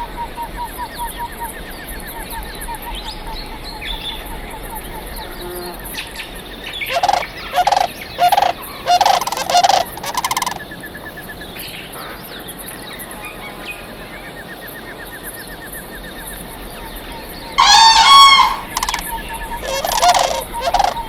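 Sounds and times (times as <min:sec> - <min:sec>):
large bird harsh calls: 0:06.8 - 0:10.7, 0:17.6 - 0:21.0.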